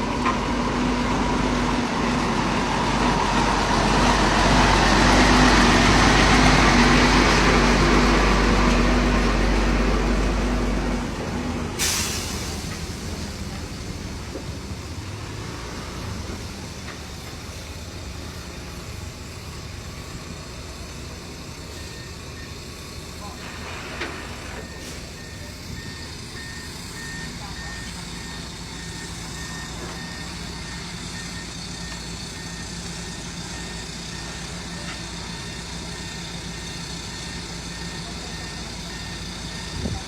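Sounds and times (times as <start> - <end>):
heavy diesel machinery running: 0.0 - 40.0
air release hiss: 11.8 - 13.3.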